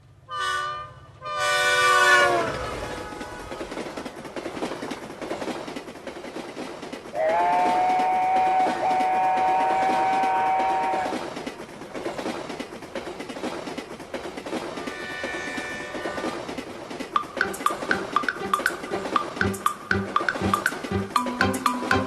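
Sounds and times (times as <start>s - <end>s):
train horn blast: 0.3s - 3.7s
train rumbling clatter: 1.1s - 22.0s.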